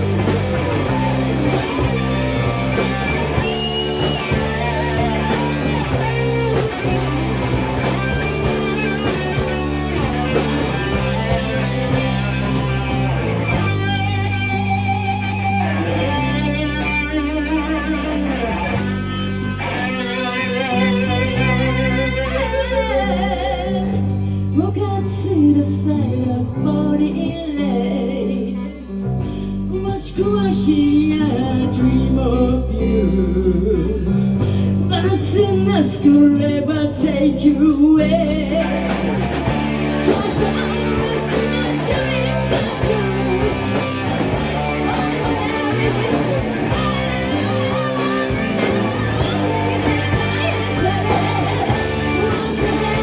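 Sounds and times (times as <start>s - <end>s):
electric guitar: 0.0s - 53.0s
live rock band playing: 0.0s - 53.0s
person singing: 29.7s - 53.0s.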